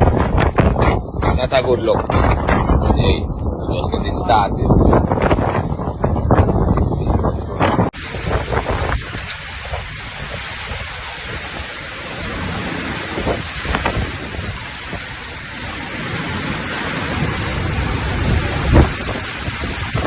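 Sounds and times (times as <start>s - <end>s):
wind buffeting microphone: 0.0s - 20.0s
river rushing: 8.0s - 20.0s.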